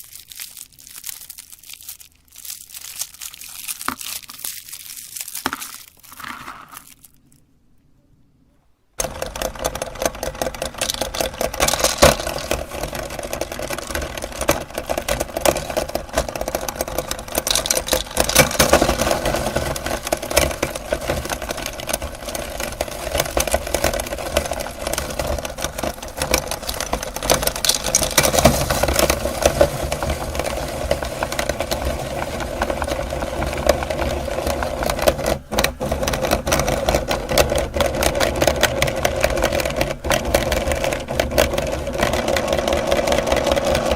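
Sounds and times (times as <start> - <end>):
candy crunching: 0.0 - 7.5, 9.0 - 43.9
meat grinder motor hum: 9.0 - 43.9.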